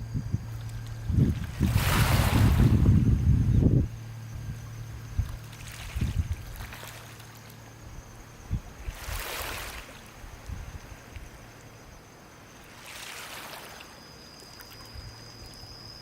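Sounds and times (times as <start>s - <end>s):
wind bumps on microphone: 0.0s - 6.8s, 7.9s - 9.7s
water trickling: 0.0s - 11.8s
small waves lapping on shore: 0.5s - 3.1s, 5.2s - 14.9s.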